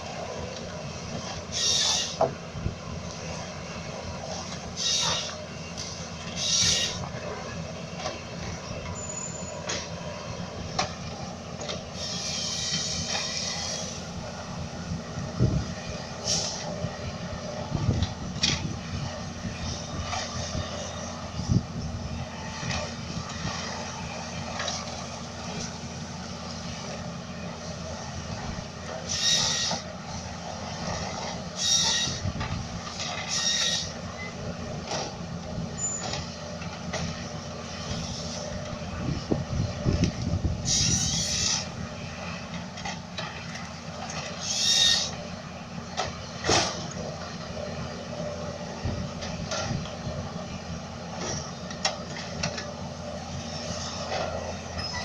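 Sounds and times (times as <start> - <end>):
diesel excavator engine running: 0.0 - 55.0
high-pitched machine squeals: 1.5 - 2.2, 4.8 - 5.4, 6.3 - 7.0, 9.0 - 9.7, 29.1 - 29.8, 31.5 - 32.3, 33.3 - 34.4, 35.8 - 36.1, 40.6 - 41.7, 44.4 - 45.2, 54.7 - 55.0.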